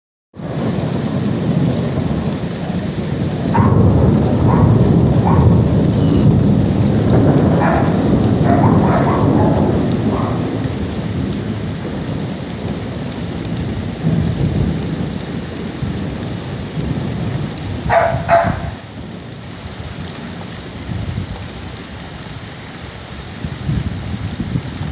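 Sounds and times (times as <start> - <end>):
sharp thunder burst: 0.4 - 19.0
thunder rumbling: 0.4 - 21.5
heavy rain: 0.4 - 24.9.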